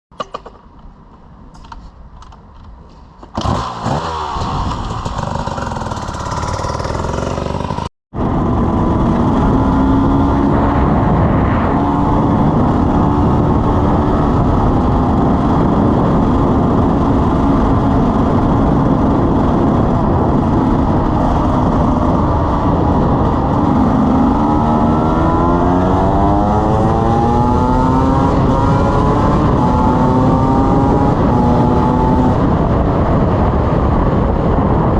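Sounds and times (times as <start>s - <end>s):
two-stroke motorcycle engine: 3.4s - 10.6s.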